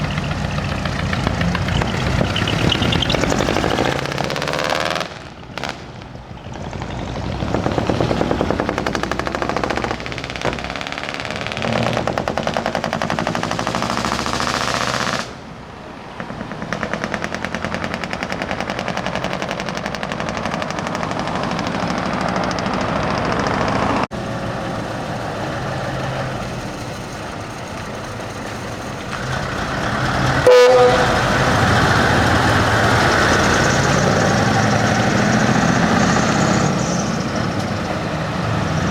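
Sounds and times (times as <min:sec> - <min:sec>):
truck diesel engines pulsing: 0:00.0 - 0:38.9
truck air horns: 0:29.1 - 0:34.9.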